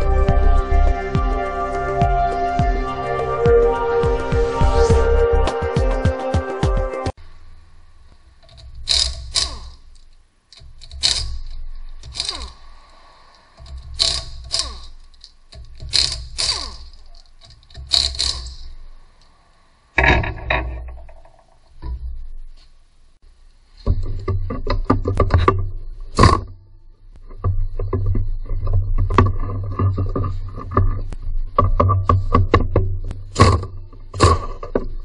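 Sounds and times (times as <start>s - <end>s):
impact wrench bursts: 8.4s - 10.0s, 10.6s - 19.4s.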